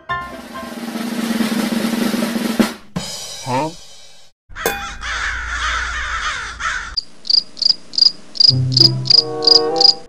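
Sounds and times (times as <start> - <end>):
cricket chirp sound effect: 7.0 - 10.0.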